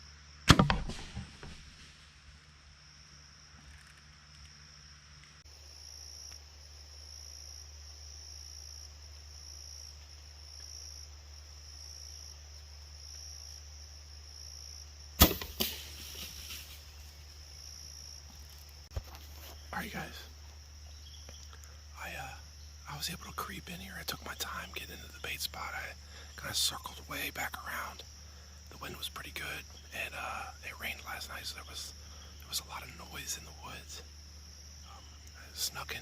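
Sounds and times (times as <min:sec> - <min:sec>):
insects chirping: 0:00.0 - 0:36.0
bow shot crack: 0:00.4 - 0:02.3, 0:15.2 - 0:17.4.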